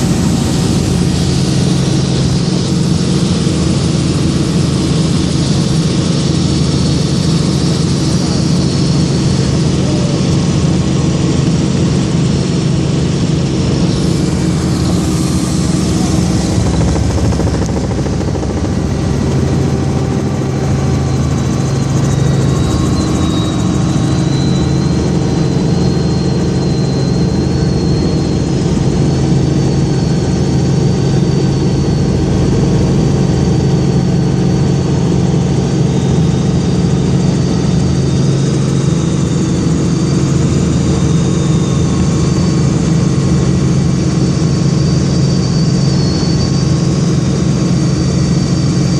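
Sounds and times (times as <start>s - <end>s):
thin high whine: 0.0s - 34.9s
helicopter engine and rotor drone: 0.0s - 48.9s.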